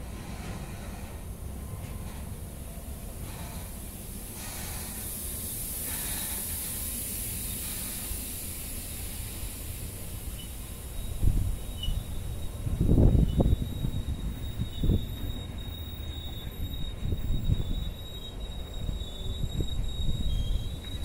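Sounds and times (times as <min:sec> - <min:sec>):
freight train rumble: 0:00.0 - 0:21.0
steady high hiss: 0:02.6 - 0:15.0.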